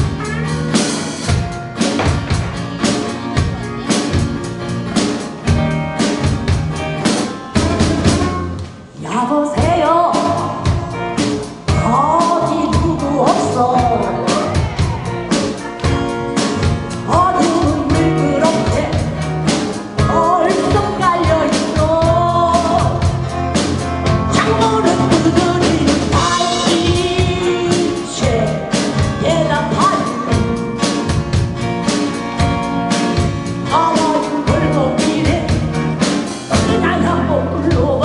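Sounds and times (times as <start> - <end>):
drums: 0.0 - 38.0
live band playing: 0.0 - 38.0
lead singer singing: 8.9 - 23.3, 24.2 - 30.7, 33.6 - 38.0.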